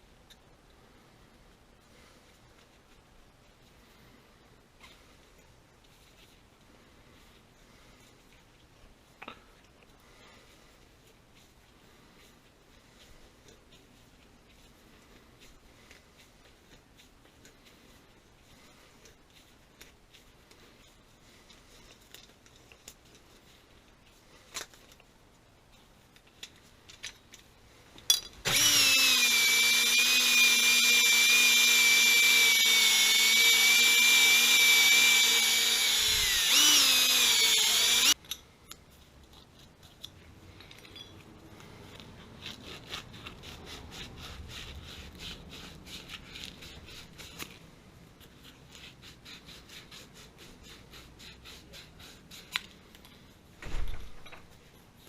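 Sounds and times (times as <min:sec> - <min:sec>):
electric drill running: 0:28.5 - 0:38.2.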